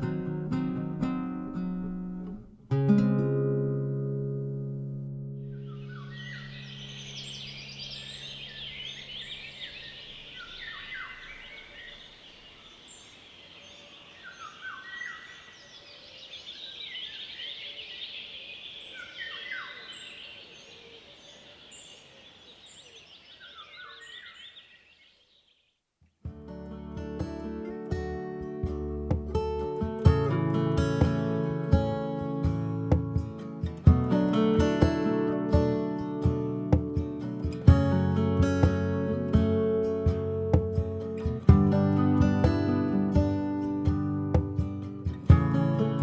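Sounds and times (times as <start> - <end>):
birds chirping and singing: 5.5 - 25.6.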